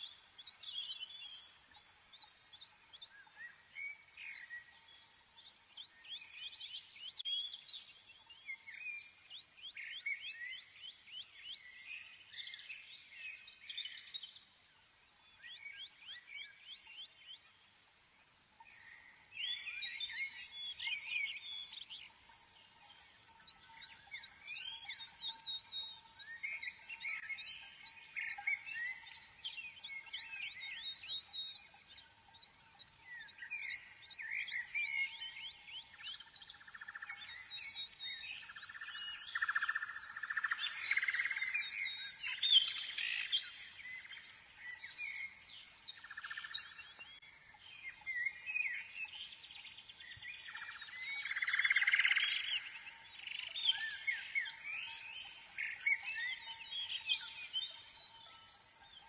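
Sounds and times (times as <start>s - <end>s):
birds chirping and singing: 0.0s - 59.0s
faint steady tone: 0.0s - 59.0s.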